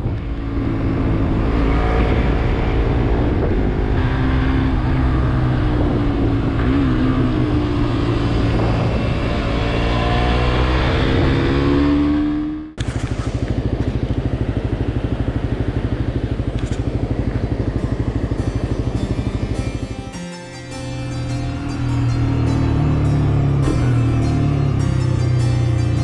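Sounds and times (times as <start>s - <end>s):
wind rushing over microphone: 0.0s - 9.9s
motorcycle engine running: 0.0s - 26.0s
motorcycle engine idling: 12.8s - 26.0s.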